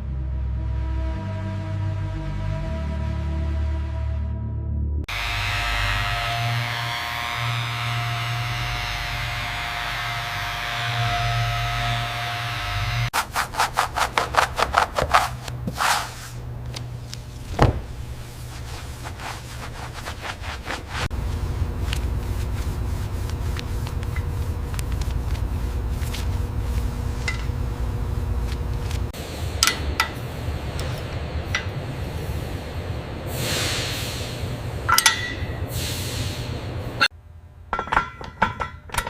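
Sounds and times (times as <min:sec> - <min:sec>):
sanding strokes: 0:10.0 - 0:16.4, 0:18.2 - 0:24.7
low machine hum: 0:14.0 - 0:39.0.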